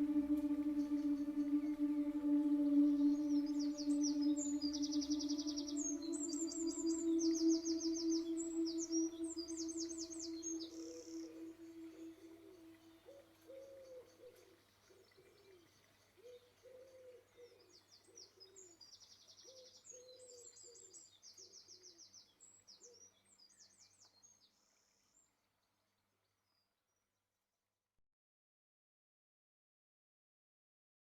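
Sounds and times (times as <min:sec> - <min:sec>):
bird cooing: 0:00.0 - 0:14.5.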